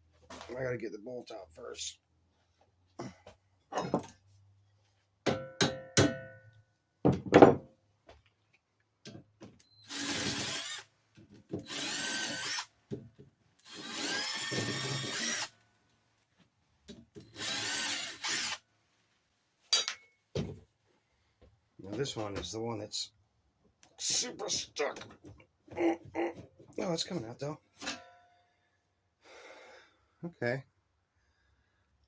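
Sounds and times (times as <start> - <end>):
power drill whirring: 9.7 - 10.9, 11.6 - 12.7, 13.6 - 15.6, 17.2 - 18.6
metal tool clanks: 19.7 - 20.2.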